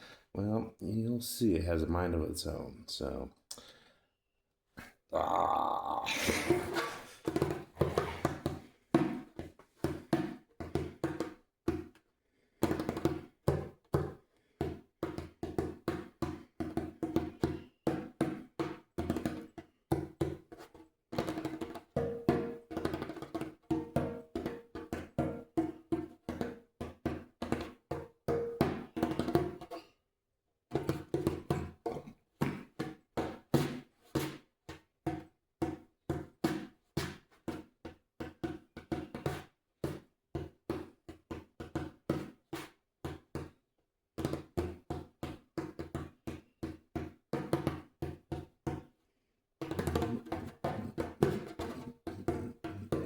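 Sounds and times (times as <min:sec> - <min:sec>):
hand drum strikes: 0:49.7 - 0:53.0.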